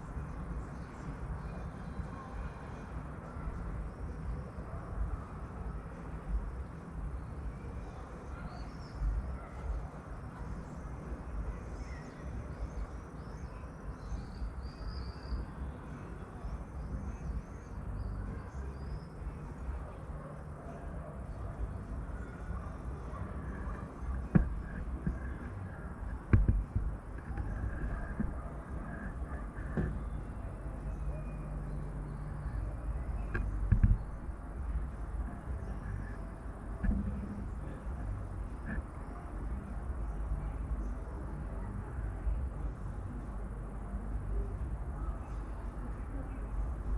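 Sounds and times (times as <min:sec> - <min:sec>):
songbirds chirping: 0:00.0 - 0:46.9
steady low rumble: 0:16.4 - 0:46.9
knocks and thumps: 0:24.2 - 0:25.4, 0:26.1 - 0:28.4, 0:29.6 - 0:30.0, 0:33.3 - 0:34.0.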